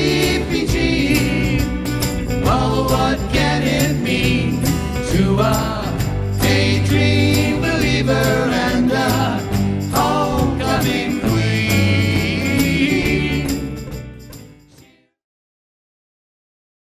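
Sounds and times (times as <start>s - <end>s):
band playing a pop song: 0.0s - 14.6s.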